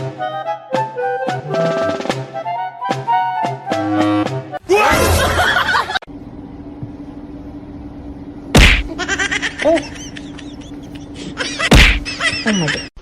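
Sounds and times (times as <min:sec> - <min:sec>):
steady low hum: 0:05.2 - 0:13.0
sharp slap: 0:08.6 - 0:08.9, 0:11.7 - 0:12.1.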